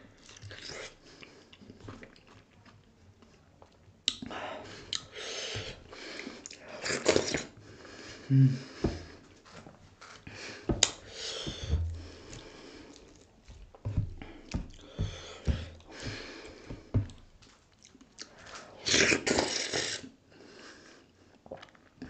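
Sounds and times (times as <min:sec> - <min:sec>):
wet chewing with smacks: 0:00.1 - 0:07.6, 0:10.7 - 0:11.0, 0:11.7 - 0:18.6.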